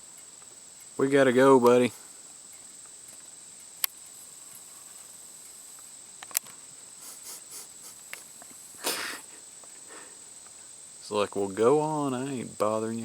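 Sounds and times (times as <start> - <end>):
insect trilling: 0.0 - 13.0
sharp clicks: 1.6 - 4.7, 5.4 - 9.3.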